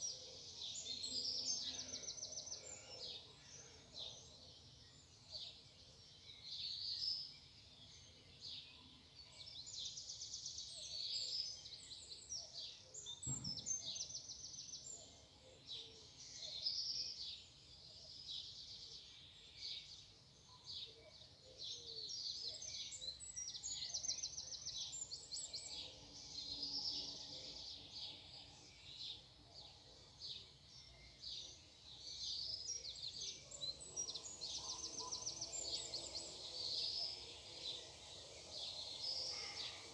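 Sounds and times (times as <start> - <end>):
songbirds singing: 0.0 - 39.9
low thump: 13.3 - 13.7.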